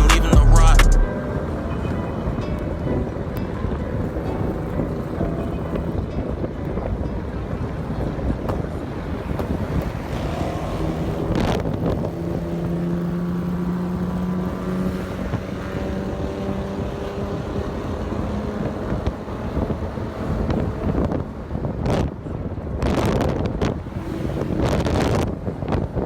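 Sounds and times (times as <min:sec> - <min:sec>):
car engine running: 0:00.0 - 0:01.1
wind noise on microphone: 0:01.1 - 0:12.8, 0:15.2 - 0:26.0.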